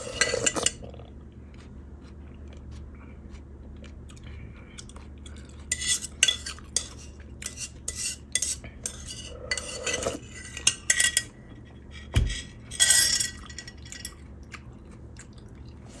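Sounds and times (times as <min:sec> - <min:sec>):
utensils clinking against dishes: 0:00.0 - 0:00.9, 0:05.4 - 0:14.6.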